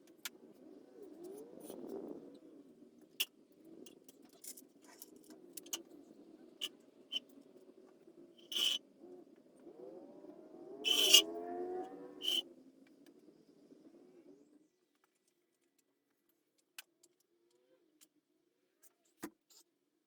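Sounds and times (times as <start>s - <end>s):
wavering squeal: 8.5s - 8.8s, 10.9s - 11.3s, 12.2s - 12.4s.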